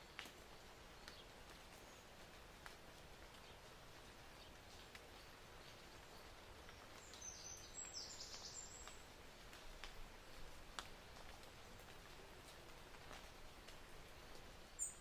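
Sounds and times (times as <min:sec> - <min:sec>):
low even hiss: 0:00.0 - 0:15.0
soft ticks: 0:02.6 - 0:03.5, 0:04.7 - 0:05.2, 0:07.8 - 0:10.0, 0:10.7 - 0:14.5.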